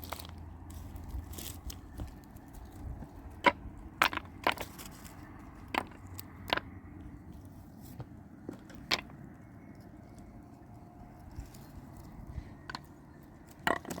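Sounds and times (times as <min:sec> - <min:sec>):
sharp irregular knocks: 0:03.4 - 0:04.9, 0:05.6 - 0:06.8, 0:08.0 - 0:09.2.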